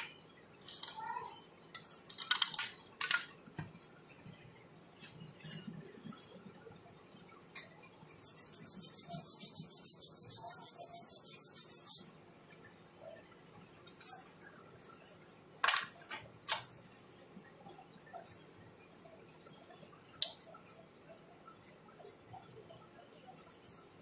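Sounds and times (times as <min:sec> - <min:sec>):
tools clicking and tapping: 0:01.8 - 0:03.8
high-pitched pulsing hiss: 0:08.1 - 0:12.1.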